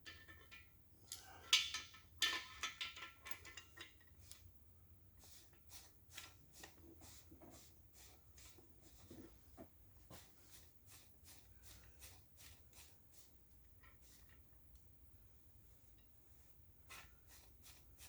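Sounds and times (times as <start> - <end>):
light metal taps and clicks: 0.0 - 4.1
metal clinking and scraping: 0.0 - 4.2.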